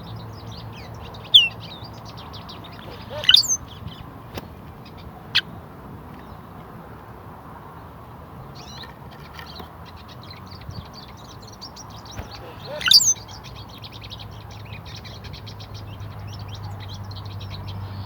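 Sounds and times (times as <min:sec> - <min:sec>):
wild birds chirping and calling: 0:00.4 - 0:04.1, 0:08.6 - 0:18.0.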